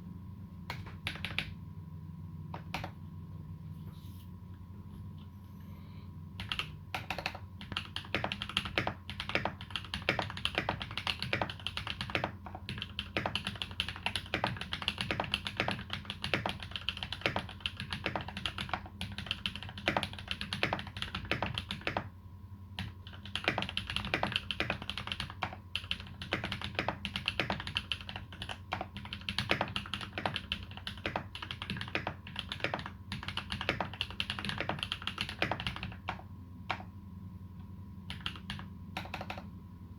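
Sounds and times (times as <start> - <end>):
typing on mechanical keyboard: 0.7 - 1.5, 2.6 - 3.0, 6.4 - 22.1, 22.8 - 36.9, 38.1 - 39.5.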